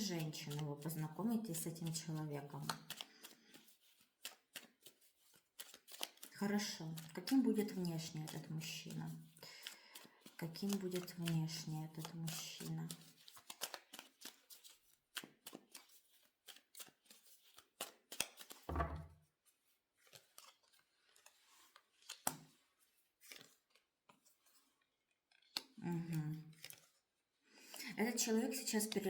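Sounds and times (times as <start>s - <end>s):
cards being shuffled: 2.6s - 6.3s, 7.0s - 25.8s, 26.5s - 27.0s
low thump: 18.7s - 19.1s.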